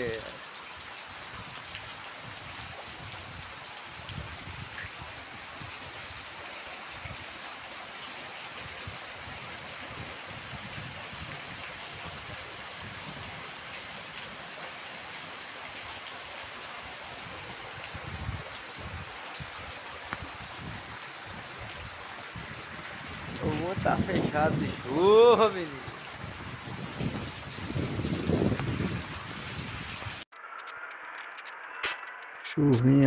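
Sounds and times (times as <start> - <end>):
heavy rain pouring: 0.0 - 31.8.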